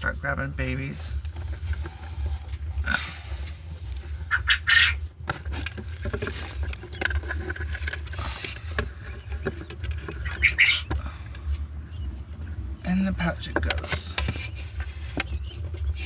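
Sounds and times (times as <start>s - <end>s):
quail chicks peeping: 0.0s - 16.0s.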